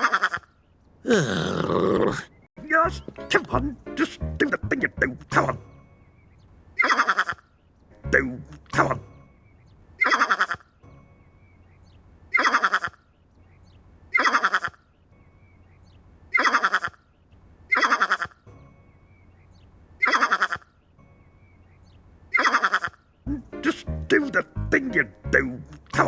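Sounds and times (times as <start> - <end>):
bleating animal call: 6.8 - 7.5, 10.0 - 10.7, 12.3 - 13.0, 14.2 - 14.8, 16.3 - 17.0, 17.7 - 18.4, 20.0 - 20.7, 22.3 - 23.0.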